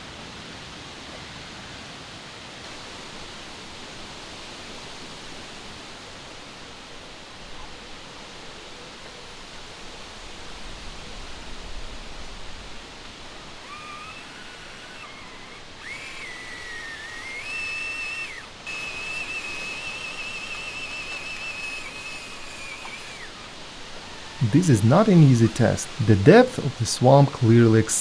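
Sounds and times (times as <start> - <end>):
rc truck electric motor whine: 2.7 - 26.8
steady hiss: 9.8 - 28.0.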